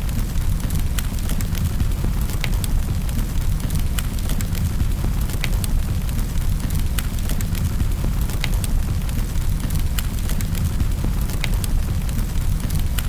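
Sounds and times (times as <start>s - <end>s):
fire crackling and popping: 0.0s - 13.0s
low rumble of burning: 0.0s - 13.0s.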